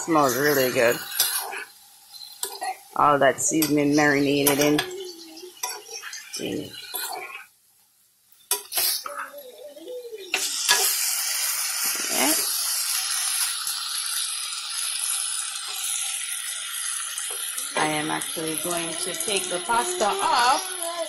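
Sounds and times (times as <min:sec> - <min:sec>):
metal spoon scraping pot: 0:00.0 - 0:02.8, 0:03.6 - 0:07.5
chicken sizzling: 0:00.0 - 0:21.0.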